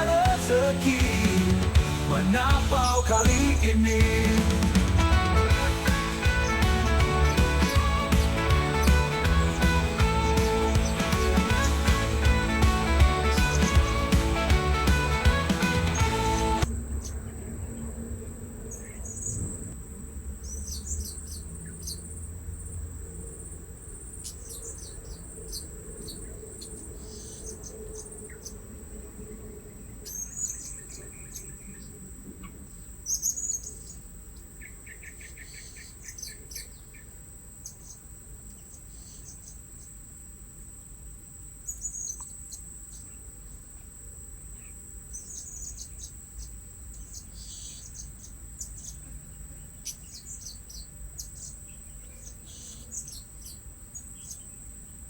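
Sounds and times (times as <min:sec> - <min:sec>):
insect drone: 0:16.6 - 0:55.0.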